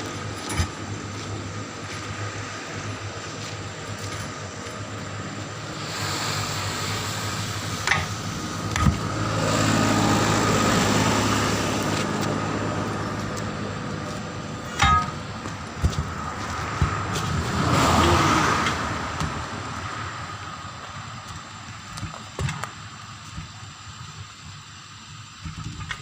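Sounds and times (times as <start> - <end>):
steady hum: 0.0 - 26.0
vehicle passing: 5.7 - 20.6.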